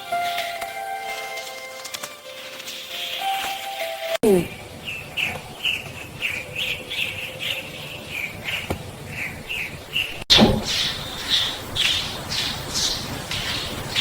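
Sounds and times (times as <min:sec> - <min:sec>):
small bird chirping: 0:04.3 - 0:14.0.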